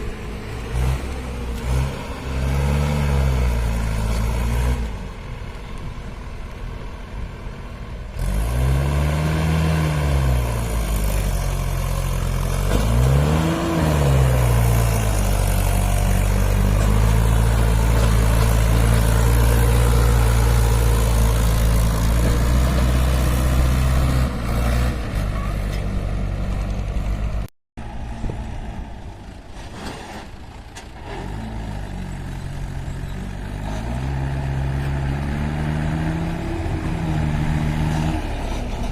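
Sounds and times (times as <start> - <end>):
diesel tractor engine revving: 0.0 - 38.9.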